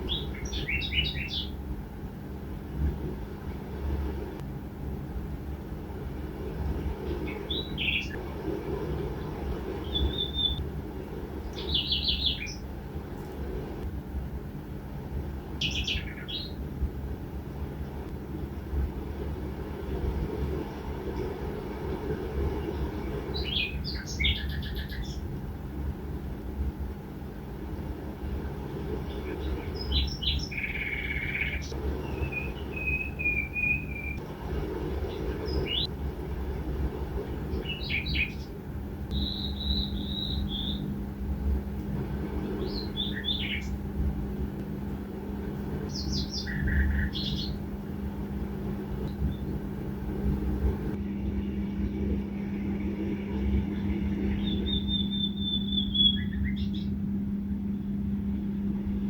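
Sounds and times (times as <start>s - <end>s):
small birds chirping: 0.0s - 1.7s, 7.1s - 8.3s, 9.0s - 10.6s, 11.4s - 12.7s, 15.6s - 16.6s, 22.5s - 25.4s, 28.9s - 34.2s, 35.0s - 35.9s, 37.4s - 41.0s, 42.4s - 43.8s, 45.6s - 47.8s, 53.2s - 57.1s
low hum and rumble: 0.0s - 59.0s.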